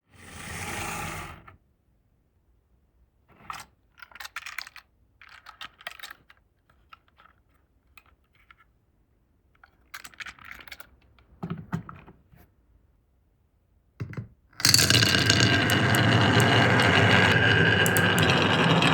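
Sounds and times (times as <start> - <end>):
marbles clattering down wooden run: 14.6 - 18.9.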